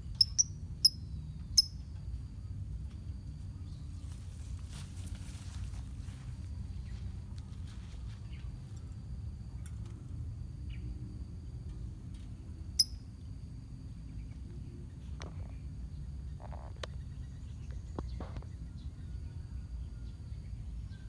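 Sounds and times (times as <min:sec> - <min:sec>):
bird chirp: 0:00.0 - 0:01.8
low background rumble: 0:00.0 - 0:21.0.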